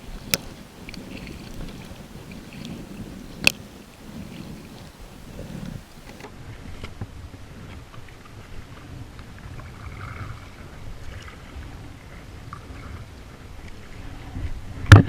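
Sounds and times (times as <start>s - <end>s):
small knocks and clicks: 0.0s - 6.3s
wind rumbling on microphone: 0.0s - 6.3s.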